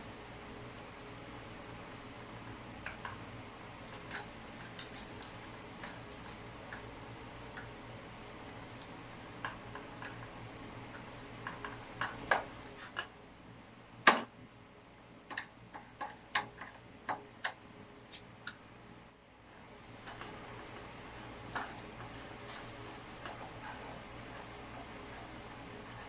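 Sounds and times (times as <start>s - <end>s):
faint steady hum: 0.0s - 26.0s
clicks and taps of hard objects: 15.3s - 18.6s.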